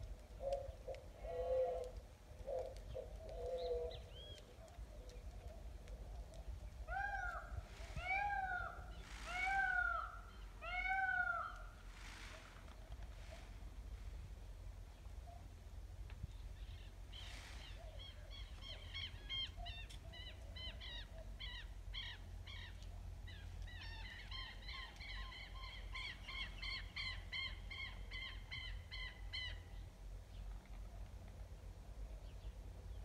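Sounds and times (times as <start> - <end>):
bird calling in clipped notes: 0.2 - 7.5.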